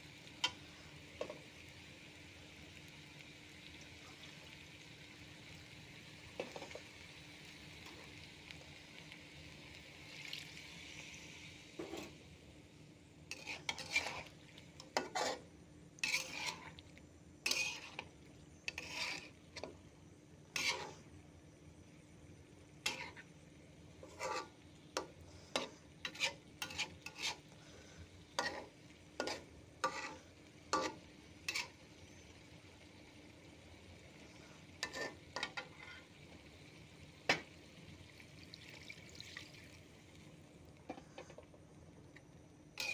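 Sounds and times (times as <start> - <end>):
faint frying sizzle: 0.0 - 42.9
spoon scraping cooking pan: 6.4 - 7.0, 11.7 - 12.2, 13.3 - 19.8, 20.5 - 21.1, 22.8 - 23.3, 23.9 - 27.6, 28.2 - 32.2, 34.4 - 36.2, 40.9 - 41.5.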